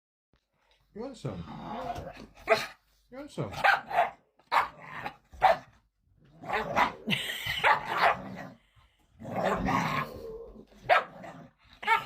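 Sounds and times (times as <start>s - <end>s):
dog barking: 3.6s - 4.8s, 5.4s - 5.7s, 10.8s - 11.2s.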